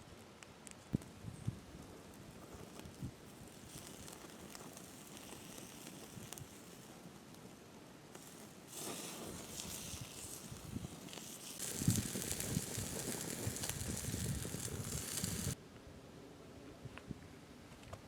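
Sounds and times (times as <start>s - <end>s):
sausage sizzling on a grill: 2.5s - 7.0s, 8.2s - 15.6s.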